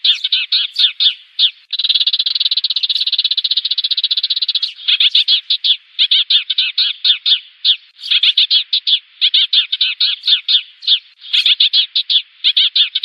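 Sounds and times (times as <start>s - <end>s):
sparrows chirping: 0.0s - 13.0s.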